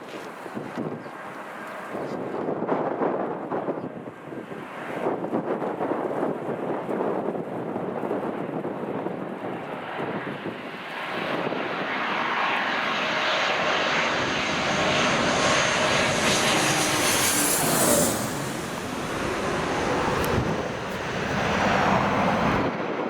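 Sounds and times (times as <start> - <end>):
airliner engines passing: 0.0 - 23.0.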